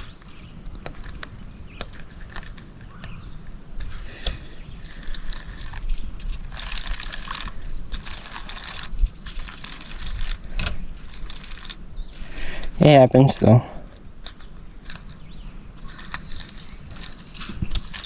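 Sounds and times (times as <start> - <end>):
fishing line scratchy rustles: 1.0 - 18.0
fishing reel clicks: 4.8 - 11.8, 15.8 - 18.0.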